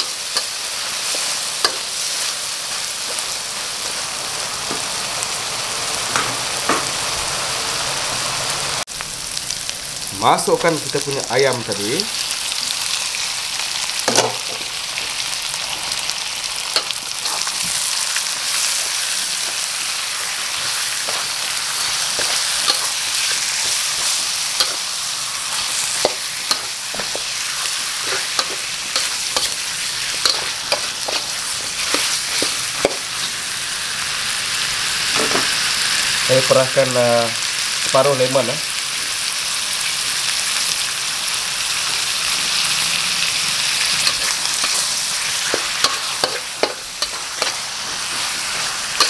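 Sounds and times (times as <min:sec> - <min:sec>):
chicken sizzling in hot oil: 0:00.0 - 0:49.0
metal ladle scraping a pan: 0:20.6 - 0:33.3.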